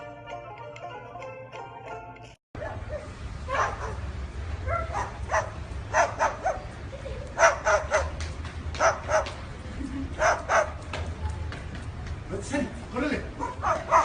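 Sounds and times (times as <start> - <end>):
dog yipping: 8.8 - 9.3, 13.4 - 14.0.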